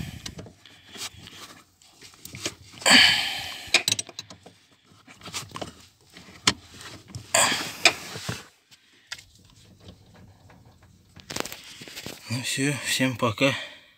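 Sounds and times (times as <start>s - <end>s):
handling clicks and knocks: 3.5s - 8.4s, 9.1s - 12.2s
rustling: 4.5s - 12.3s.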